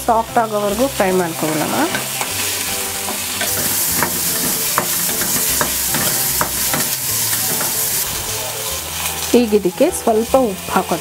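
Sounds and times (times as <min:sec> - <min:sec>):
vegetables sizzling in oil: 0:00.0 - 0:11.0
wooden spatula scraping metal pan: 0:01.3 - 0:08.3.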